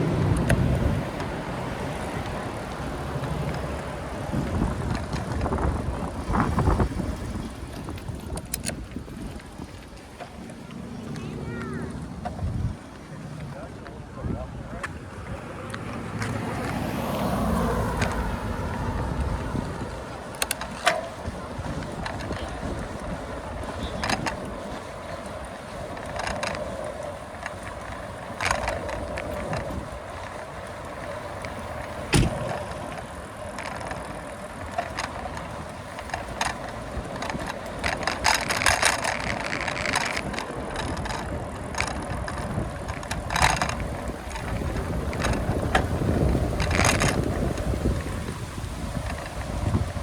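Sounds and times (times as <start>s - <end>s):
wind rushing on microphone: 0.0s - 10.2s, 10.8s - 50.0s
bicycle rattling and clicking: 0.0s - 50.0s.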